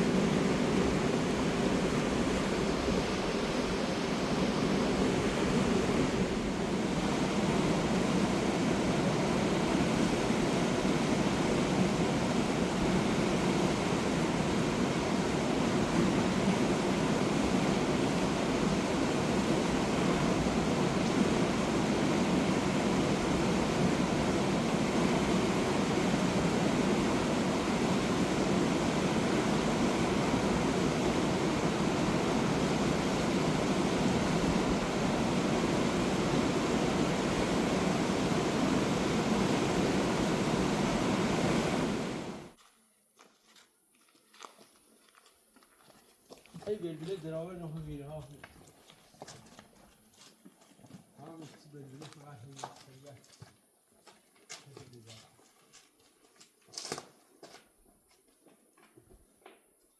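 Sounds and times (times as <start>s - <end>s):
river rushing over rocks: 0.0s - 42.5s.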